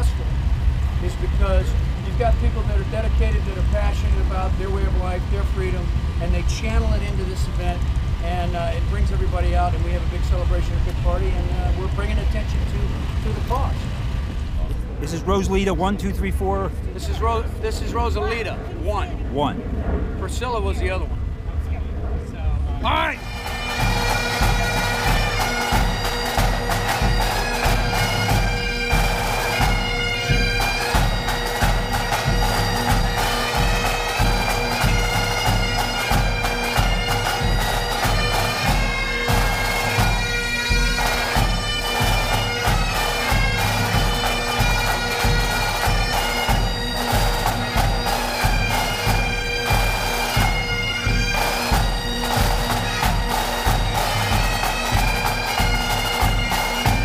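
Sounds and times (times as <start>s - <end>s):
bagpipes playing: 0.0s - 14.5s, 22.8s - 57.0s
drum beat: 22.8s - 57.0s.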